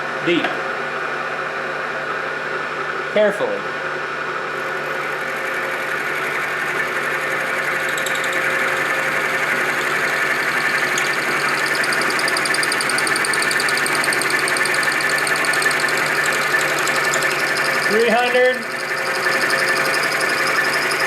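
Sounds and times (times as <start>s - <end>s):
pulsing high whine: 4.8s - 21.0s
milling machine cutting metal: 5.0s - 21.0s.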